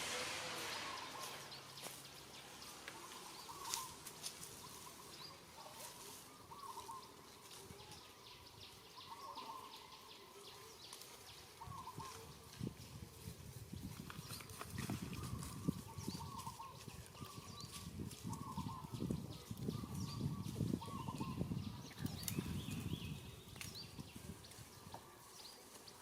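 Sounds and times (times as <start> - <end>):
steady hiss: 0.0 - 6.5
bird chirping: 0.0 - 11.0.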